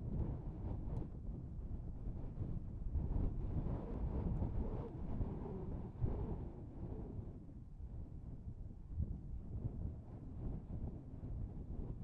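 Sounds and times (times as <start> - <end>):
wind buffeting a microphone: 0.0 - 12.0.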